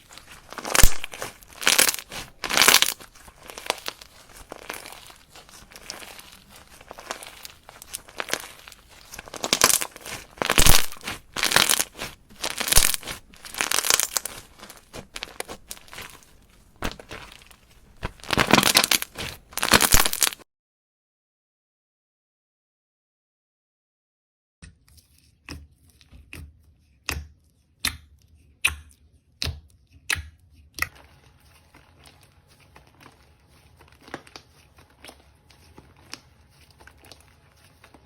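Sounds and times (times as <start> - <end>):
slime squeezed by hand crackling: 0.0 - 20.4.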